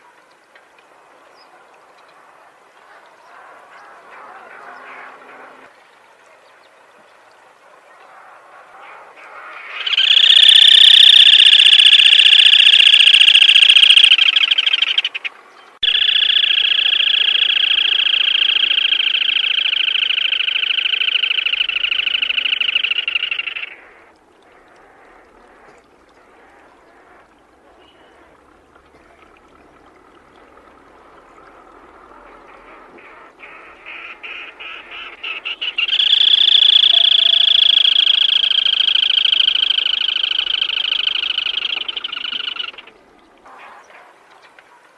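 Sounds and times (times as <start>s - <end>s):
crake trilling call: 9.7s - 25.6s, 32.2s - 43.0s.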